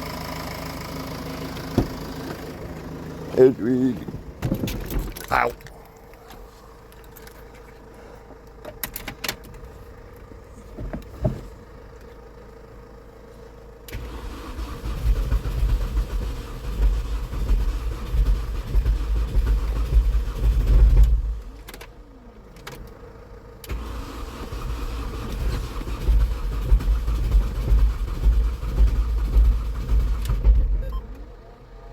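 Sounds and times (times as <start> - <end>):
heavy low engine rumble: 0.0 - 31.9.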